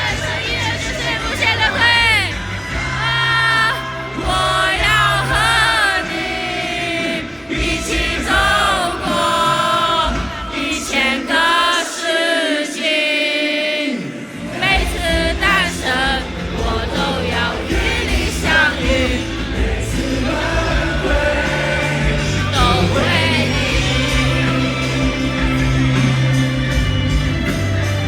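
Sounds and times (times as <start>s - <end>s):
live rock band music: 0.0s - 11.7s, 14.4s - 28.0s
wavering singing voices: 0.0s - 28.0s
long held bass notes: 14.6s - 28.0s.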